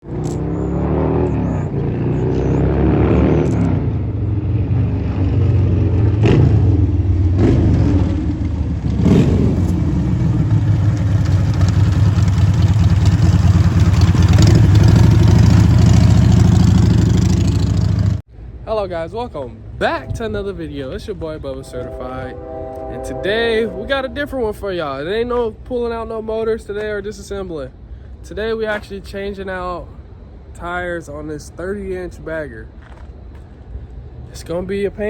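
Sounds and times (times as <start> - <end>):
motorcycle engine revving: 0.0 - 18.2.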